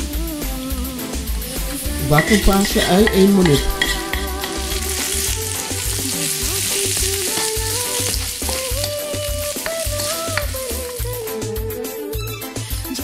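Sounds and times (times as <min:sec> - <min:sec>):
onion and garlic sizzling in oil: 0:00.4 - 0:12.0
spatula stirring in wok: 0:01.9 - 0:11.0.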